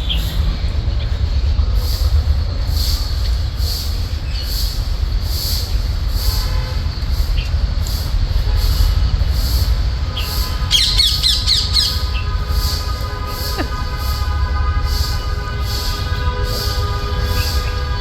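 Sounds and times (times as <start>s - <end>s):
steady low rumble: 7.6s - 18.0s
parakeet squawking: 10.7s - 12.1s.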